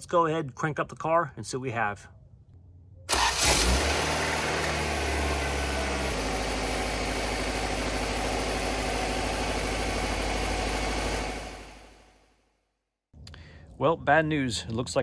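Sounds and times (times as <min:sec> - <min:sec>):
car engine starting and idling: 0:03.1 - 0:12.2.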